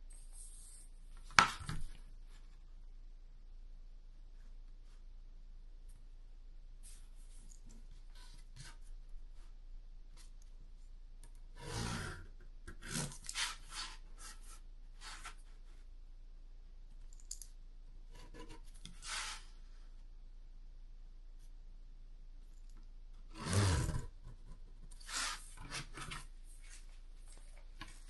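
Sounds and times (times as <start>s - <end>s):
pencil scratching on cardboard: 18.1s - 19.5s.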